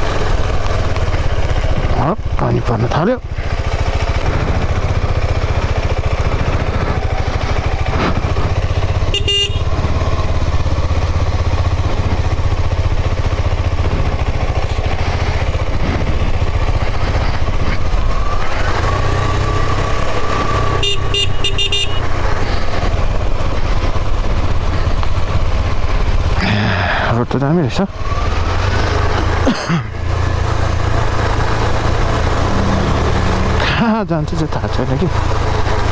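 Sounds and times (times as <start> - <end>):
motorcycle engine running: 0.0 - 35.9
horn beeping: 8.9 - 10.1, 20.6 - 22.2.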